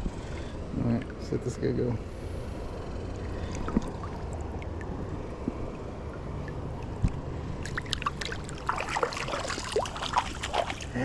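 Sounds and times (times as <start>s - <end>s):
low steady rumble: 0.0s - 11.0s
river water sloshing and splashing: 3.2s - 11.0s.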